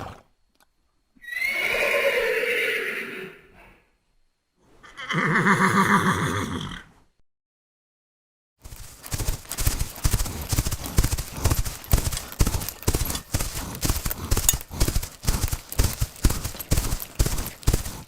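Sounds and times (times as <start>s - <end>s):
horse hooves clip-clopping: 8.6s - 18.0s.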